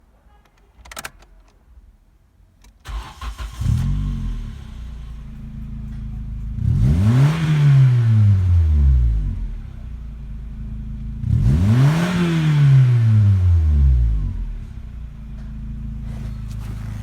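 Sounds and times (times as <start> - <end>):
car engine starting and idling: 2.8 - 17.0
engine revving: 2.9 - 14.8.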